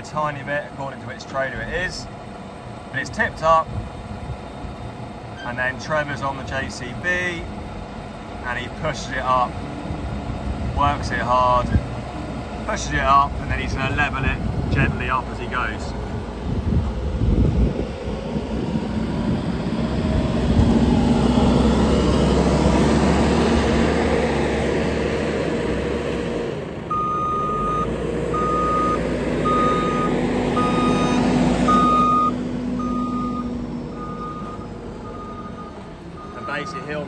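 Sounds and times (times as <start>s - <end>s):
diesel engine working hard: 0.0s - 37.0s
reversing alarm beeps: 26.9s - 37.0s.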